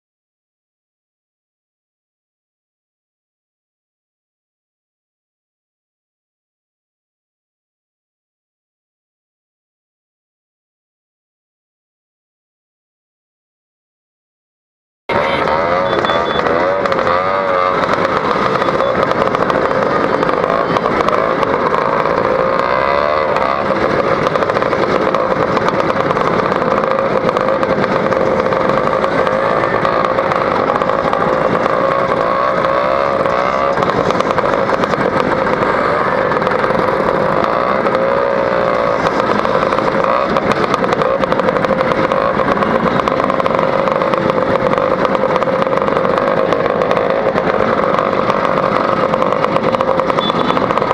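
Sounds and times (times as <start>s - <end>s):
two-stroke scooter engine: 15.1s - 50.9s.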